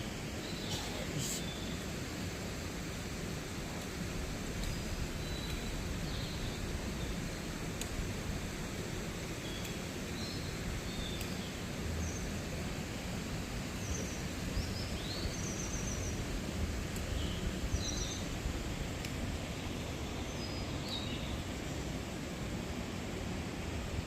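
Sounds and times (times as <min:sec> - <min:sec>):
mountain stream rushing: 0:00.0 - 0:15.4
small birds chirping and trilling: 0:00.4 - 0:01.9, 0:13.7 - 0:16.3, 0:17.0 - 0:18.4, 0:19.9 - 0:21.6.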